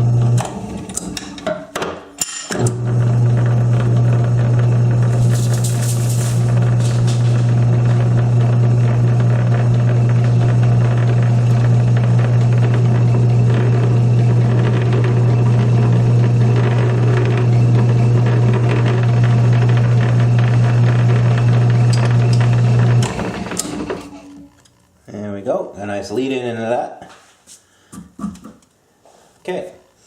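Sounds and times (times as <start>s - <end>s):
lathe tool cutting metal: 2.6s - 24.1s
lathe motor hum: 2.7s - 24.5s.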